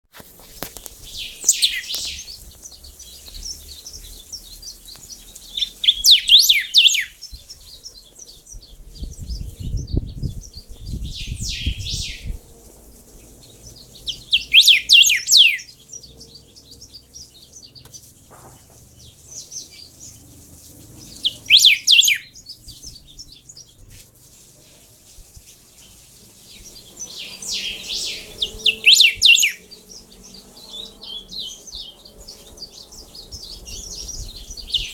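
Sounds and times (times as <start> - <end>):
songbird singing high notes: 1.0 - 7.8, 8.5 - 12.4, 13.7 - 16.1, 21.0 - 23.5, 27.0 - 32.1.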